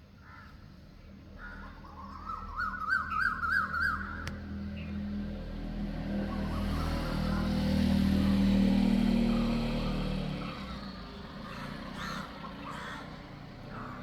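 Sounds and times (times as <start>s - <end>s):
vehicle engine passing: 4.4s - 14.0s
birds calling: 9.2s - 14.0s.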